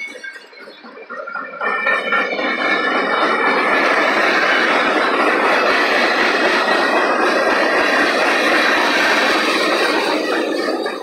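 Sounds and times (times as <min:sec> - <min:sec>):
freight train wheels on rail: 0:00.0 - 0:11.0.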